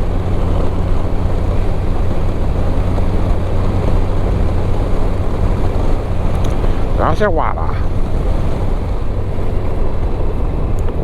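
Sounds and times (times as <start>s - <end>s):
motorcycle engine drone: 0.0s - 11.0s
wind rush: 0.0s - 11.0s
tyre hiss on wet road: 5.2s - 7.0s.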